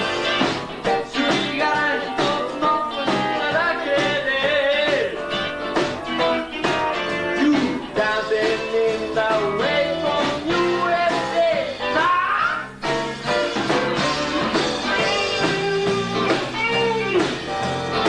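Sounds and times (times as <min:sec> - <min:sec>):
blues-rock band playing: 0:00.0 - 0:18.0
electric guitar lead bending: 0:12.6 - 0:18.0.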